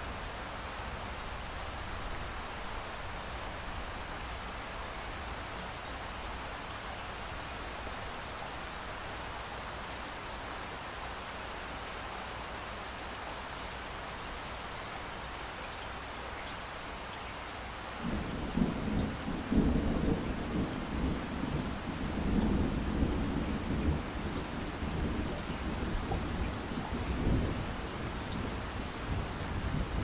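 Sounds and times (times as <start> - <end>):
steady rain: 0.0 - 30.0
thunder rumbling: 18.0 - 30.0.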